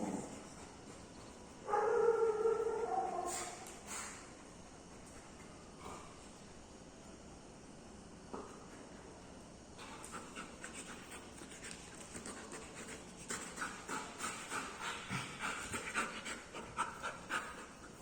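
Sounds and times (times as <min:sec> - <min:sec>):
dog panting: 0:09.8 - 0:18.0.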